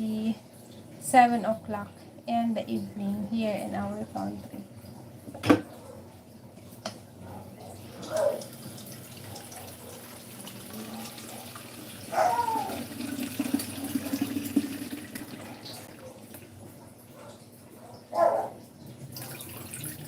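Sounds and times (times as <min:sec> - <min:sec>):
tap water running into sink: 0:07.7 - 0:16.5, 0:18.8 - 0:20.0.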